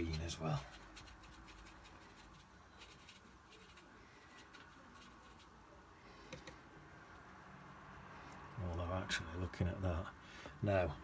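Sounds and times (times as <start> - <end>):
paintbrush ticks and scrapes: 0.0 - 5.6.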